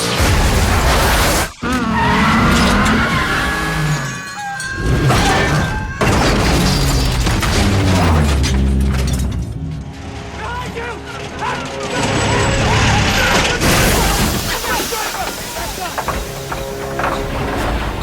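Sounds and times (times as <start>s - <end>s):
crashing and shattering glass: 0.0s - 18.0s
film score music: 0.0s - 18.0s
tyres skidding: 0.7s - 18.0s
car engines: 1.6s - 14.4s.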